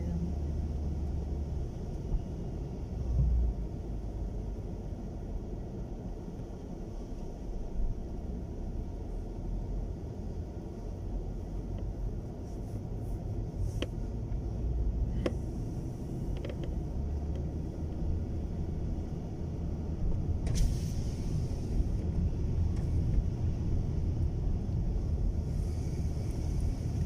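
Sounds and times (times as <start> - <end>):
car cabin rumble: 0.0 - 27.0
brief hiss: 20.4 - 21.9.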